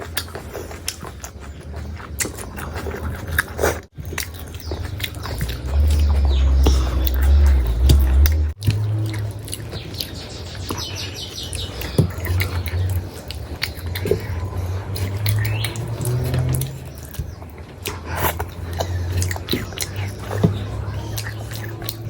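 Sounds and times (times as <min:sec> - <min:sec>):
wet chewing: 0:00.0 - 0:22.0
low rumble: 0:04.4 - 0:09.6.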